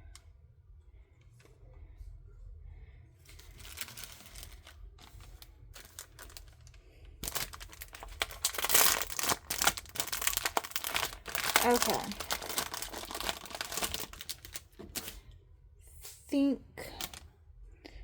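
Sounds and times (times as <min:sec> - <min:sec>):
packaging crinkling: 0:03.3 - 0:15.2, 0:16.8 - 0:17.2.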